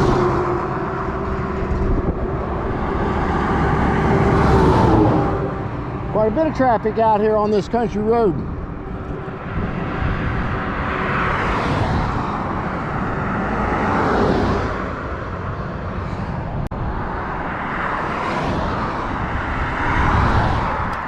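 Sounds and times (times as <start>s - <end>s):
cars passing by: 0.0s - 21.0s
wind buffeting microphone: 0.0s - 21.0s.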